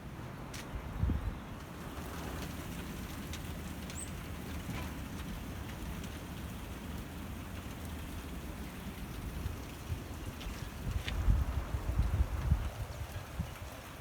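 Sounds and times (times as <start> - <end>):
wind rumble on microphone: 0.7 - 1.5, 9.1 - 14.0
pellets and rain ticking: 1.6 - 14.0.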